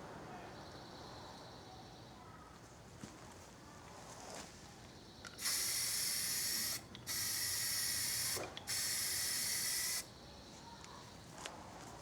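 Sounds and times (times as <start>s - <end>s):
spray paint can hissing: 5.4s - 10.1s.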